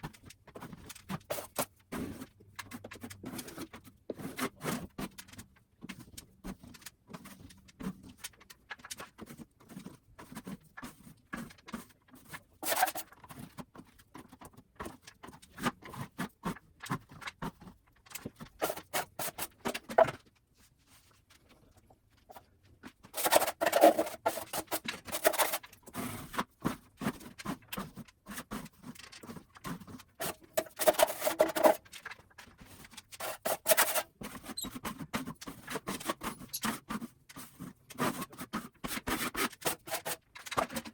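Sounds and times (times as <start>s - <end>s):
hand scraping on textured ceiling: 32.8s - 40.4s.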